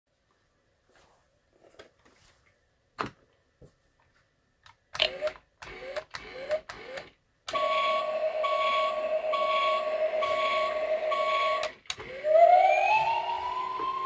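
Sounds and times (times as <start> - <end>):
toy motor whirs rising in pitch: 5.0 - 14.0.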